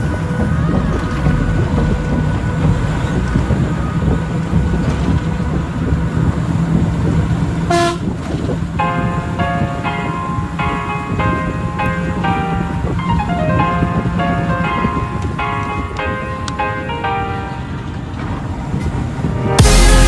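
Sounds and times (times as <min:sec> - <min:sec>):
train rumbling: 0:00.0 - 0:20.0
train horn toot: 0:07.7 - 0:08.2
piano music: 0:08.6 - 0:20.0.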